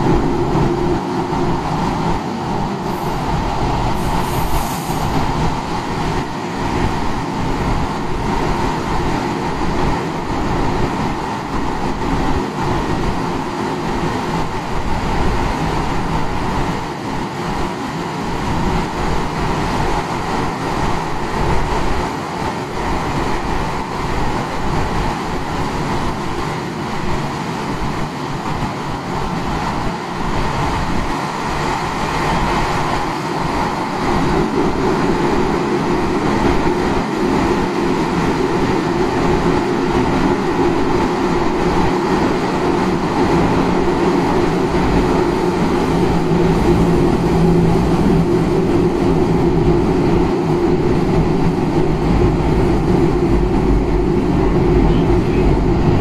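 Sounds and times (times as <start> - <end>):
steady hum: 0.0 - 8.4, 34.3 - 56.0
train wheels rumbling on rail: 0.0 - 56.0.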